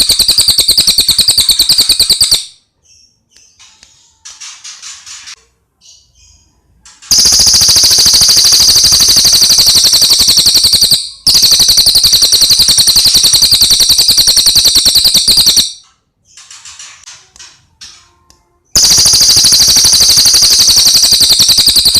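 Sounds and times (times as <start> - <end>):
songbird rattling trills: 0.0 - 2.5, 7.1 - 15.7, 18.8 - 21.9
songbird chirps: 1.8 - 7.2.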